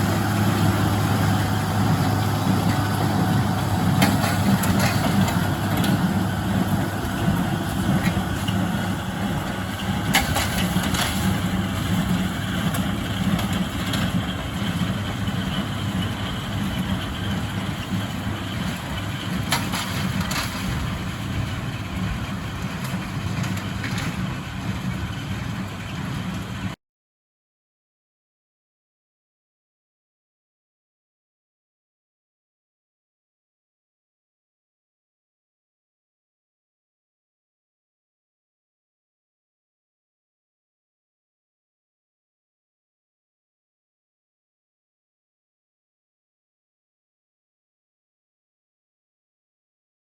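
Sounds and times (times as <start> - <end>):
tractor diesel engine running: 0.0 - 26.8.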